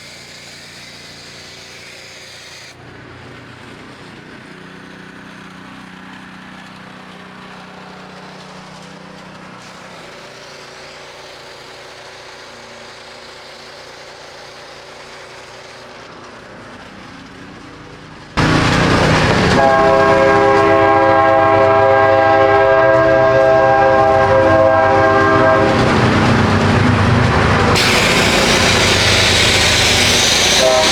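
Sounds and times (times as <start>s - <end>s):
pressure washer spraying: 0.0s - 2.8s, 9.6s - 16.0s, 24.6s - 30.9s
chord-like whine: 18.4s - 30.9s.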